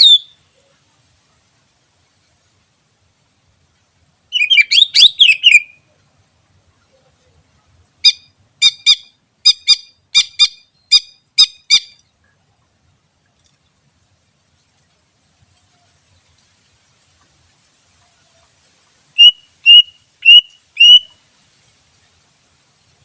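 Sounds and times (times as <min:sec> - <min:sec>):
bird singing whistled notes: 0:00.0 - 0:00.6, 0:04.3 - 0:05.9, 0:08.0 - 0:12.0, 0:19.2 - 0:21.2.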